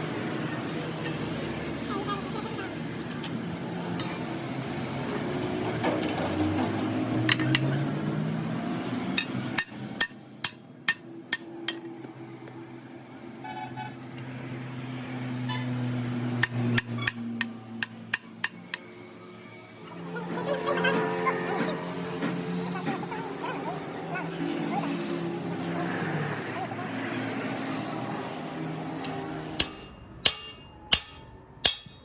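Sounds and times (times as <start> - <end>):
hammer striking metal: 9.2 - 12.1, 16.4 - 19.0, 29.0 - 32.0.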